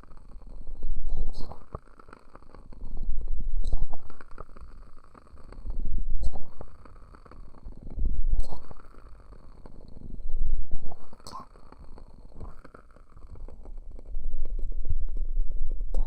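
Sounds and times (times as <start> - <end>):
small crackles: 0.0 - 16.0
muffled rumbles from hands on microphone: 2.7 - 4.4, 12.2 - 16.0.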